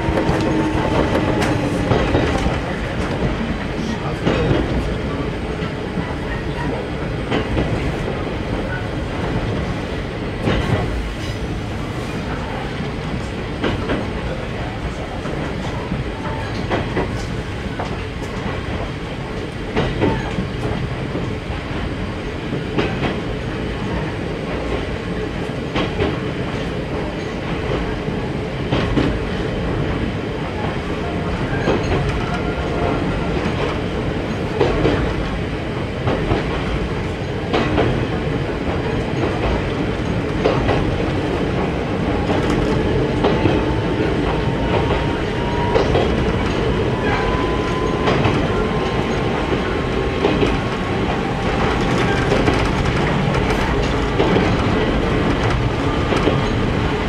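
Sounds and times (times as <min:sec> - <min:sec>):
railcar wheels and motors rumbling: 0:00.0 - 0:57.0
wheels clacking over rail joint: 0:36.0 - 0:57.0.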